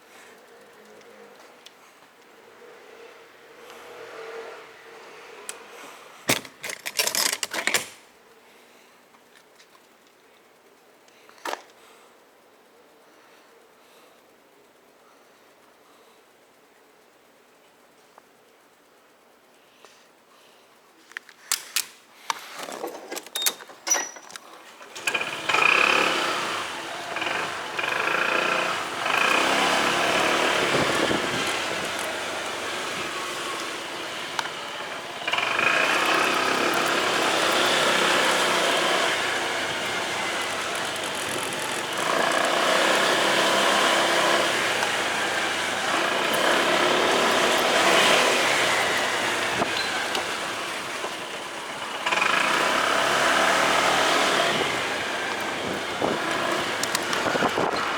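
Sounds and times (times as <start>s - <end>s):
motorcycle engine running: 24.9s - 57.9s.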